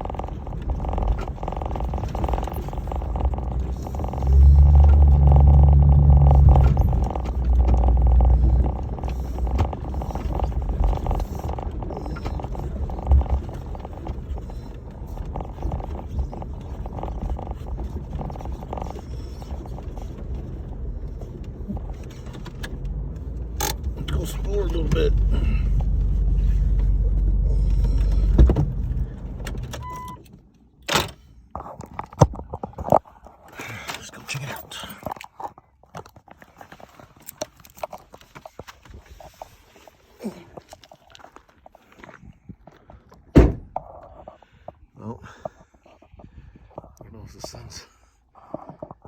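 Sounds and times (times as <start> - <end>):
tyres crackling over gravel: 0.0 - 28.3, 32.4 - 43.3
engine rumbling: 0.0 - 49.0.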